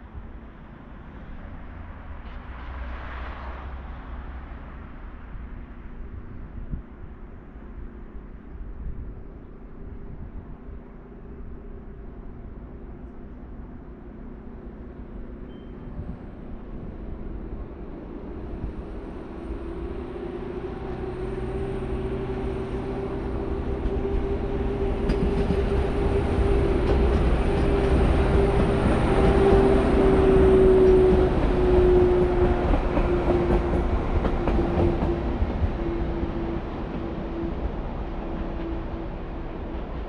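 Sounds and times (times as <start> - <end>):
train passing: 0.0 - 40.0
train hum dropping in pitch: 8.9 - 40.0.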